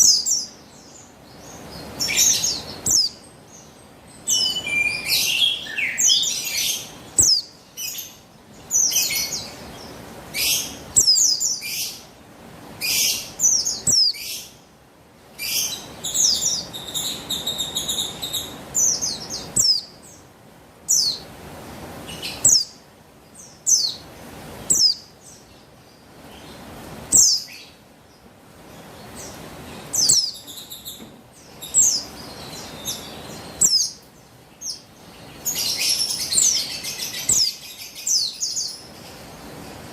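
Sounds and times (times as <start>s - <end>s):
bird twittering: 1.4s - 12.0s, 12.8s - 14.5s, 15.4s - 20.2s, 22.2s - 22.8s, 24.7s - 25.4s, 27.1s - 27.7s, 29.2s - 38.9s.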